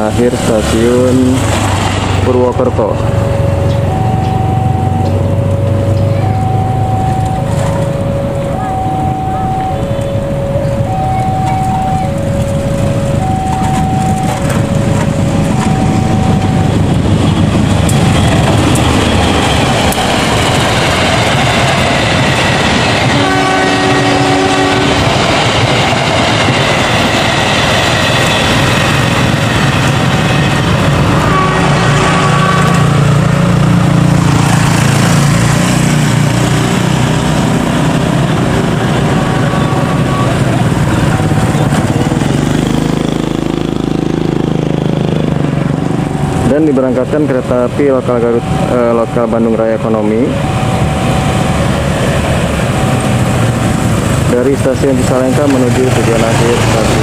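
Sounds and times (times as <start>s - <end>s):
deep engine rumble: 0.0s - 57.0s
two-tone warning signal: 2.6s - 28.9s, 37.8s - 44.4s, 46.0s - 57.0s
train wheels clattering on rails: 13.6s - 46.5s, 50.5s - 57.0s
train horn blast: 23.0s - 25.4s, 30.8s - 33.4s, 38.2s - 41.4s.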